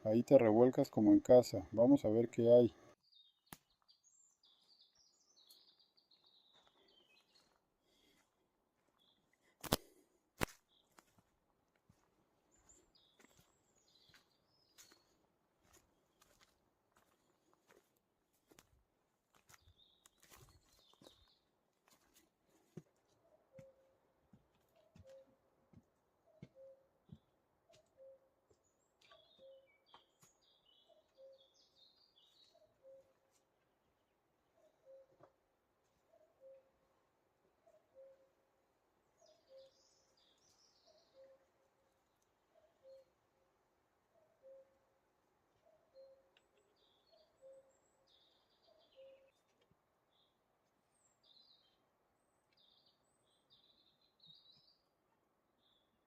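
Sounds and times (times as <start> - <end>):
high bird chirping: 29.0 - 33.2, 45.6 - 49.4.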